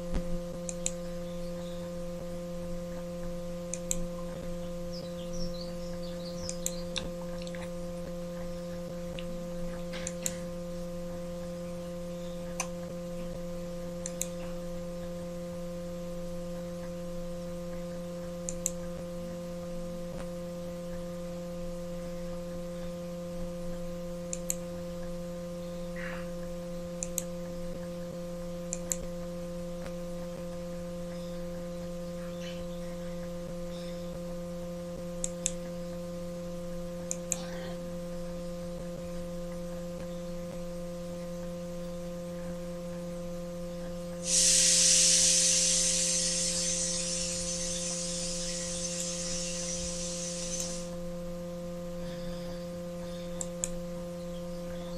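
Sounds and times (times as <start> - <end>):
electrical mains hum: 0.0 - 54.9
loud hiss: 44.2 - 51.0.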